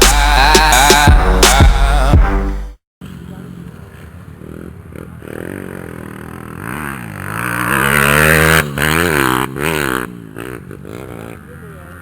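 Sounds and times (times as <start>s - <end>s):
dirt bike engine revving: 3.0s - 12.0s.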